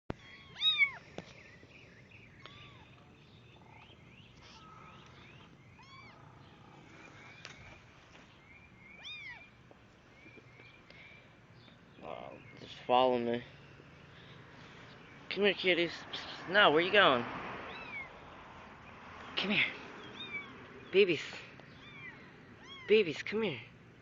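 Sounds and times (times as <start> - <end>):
kittens meowing: 0.1 - 1.1, 2.3 - 7.4, 9.0 - 9.6, 17.7 - 18.3, 20.0 - 20.6, 21.6 - 23.0.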